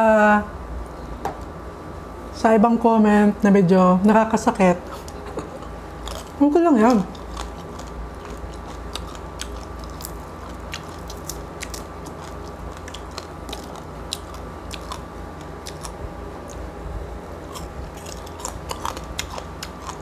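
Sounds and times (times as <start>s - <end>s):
crunching crispy skin: 5.0s - 20.0s.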